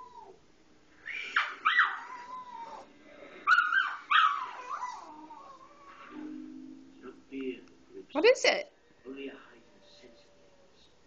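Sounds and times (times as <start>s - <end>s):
dog whining and yelping: 0.0s - 0.4s, 1.3s - 6.1s.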